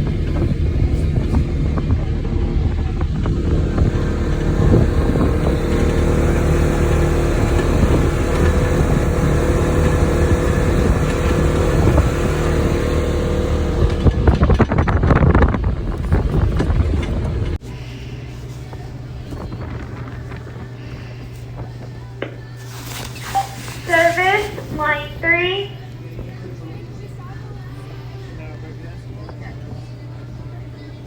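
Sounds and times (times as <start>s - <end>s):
rattling and knocking: 0.0s - 17.6s
off-road vehicle engine running: 0.0s - 31.0s.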